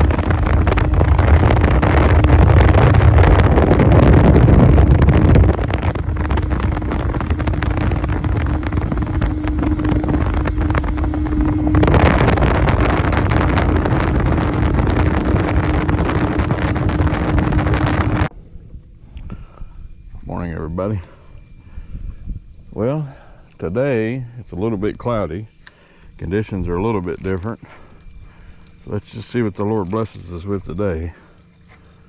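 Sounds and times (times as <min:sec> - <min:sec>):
motorboat running: 0:00.0 - 0:18.3
wind buffeting microphone: 0:00.0 - 0:20.3
steady hum: 0:00.0 - 0:32.0.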